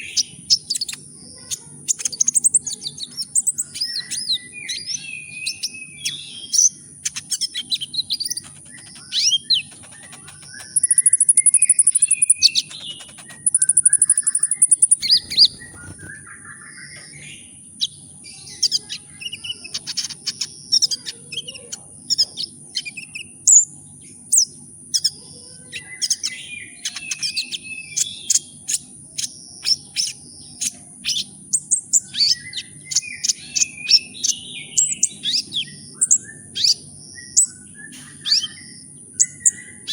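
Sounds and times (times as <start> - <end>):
sunbird chirping and trilling: 0.0 - 39.9
faint high whine: 7.6 - 16.8.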